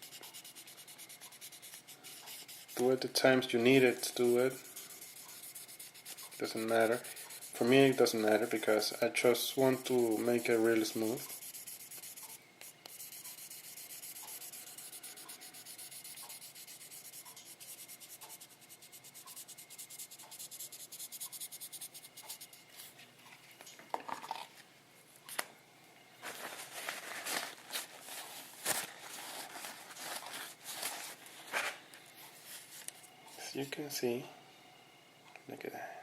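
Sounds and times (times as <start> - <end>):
sandpaper rubbing on paint: 0.0 - 22.6
knocks and handling noises: 23.3 - 24.7, 26.2 - 31.8.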